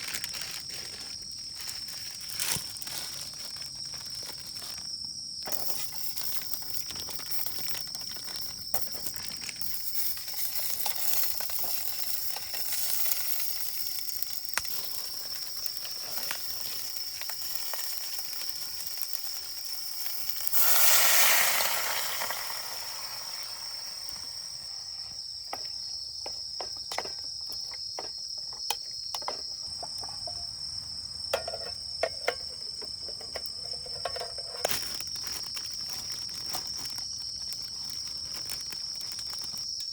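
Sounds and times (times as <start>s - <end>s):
crickets trilling: 0.0s - 39.9s
loud hiss: 15.7s - 24.9s.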